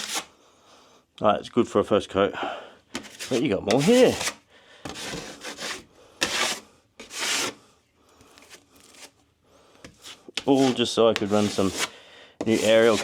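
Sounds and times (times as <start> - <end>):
drywall scraper scraping wall: 0.0 - 0.3, 3.0 - 7.6, 9.8 - 13.0.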